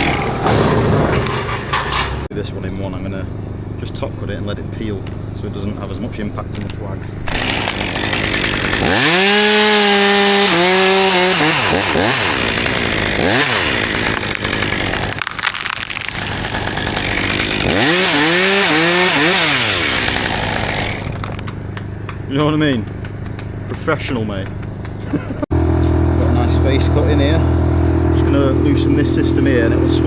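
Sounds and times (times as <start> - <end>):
chainsaw idling and revving: 6.6 - 25.4.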